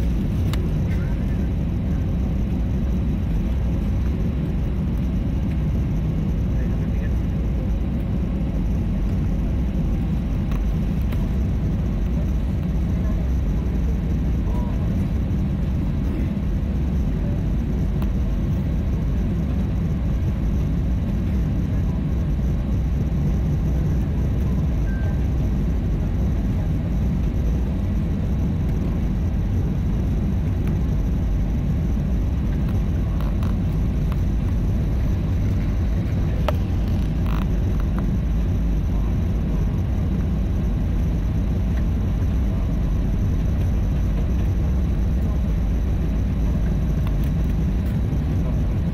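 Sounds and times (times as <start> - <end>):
airliner cabin rumble: 0.0 - 48.9.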